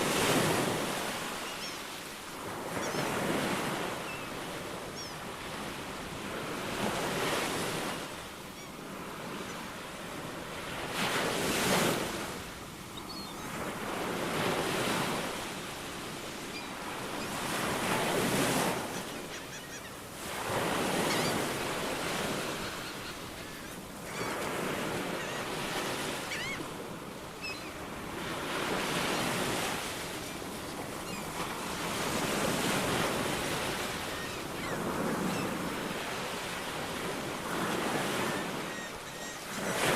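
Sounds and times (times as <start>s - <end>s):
ocean waves breaking on shore: 0.0s - 39.9s
faint bird chirps: 1.4s - 2.0s, 2.8s - 3.1s, 13.0s - 13.6s, 18.8s - 20.0s, 22.4s - 24.5s, 25.1s - 26.7s, 27.4s - 27.8s, 31.0s - 31.4s, 34.1s - 35.6s, 38.3s - 39.6s.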